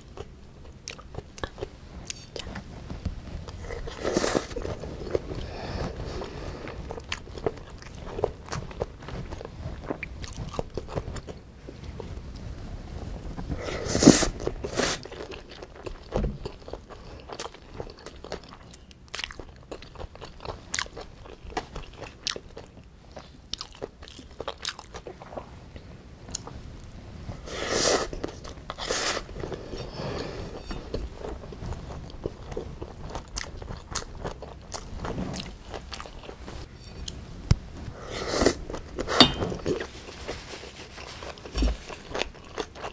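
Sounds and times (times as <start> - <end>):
chewing crunchy vegetables: 0.0 - 2.7, 3.4 - 12.0, 13.5 - 26.5, 28.0 - 37.2, 38.4 - 42.9.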